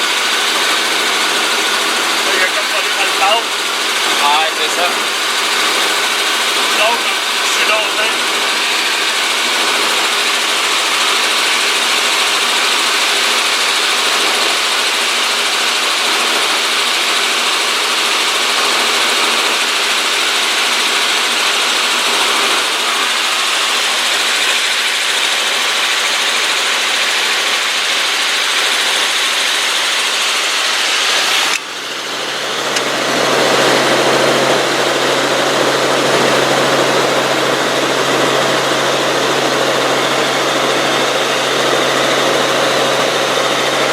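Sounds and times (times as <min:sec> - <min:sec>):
helicopter engine and rotor: 0:00.0 - 0:43.9.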